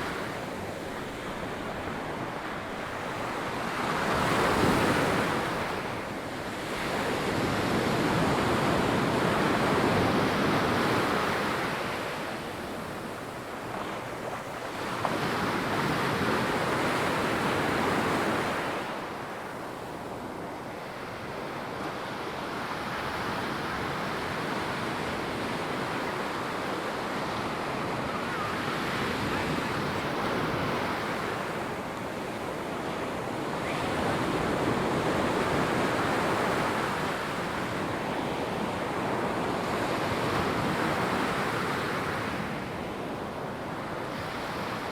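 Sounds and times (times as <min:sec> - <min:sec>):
ocean waves breaking on sand: 0:00.0 - 0:44.9
wind on microphone: 0:22.4 - 0:44.9.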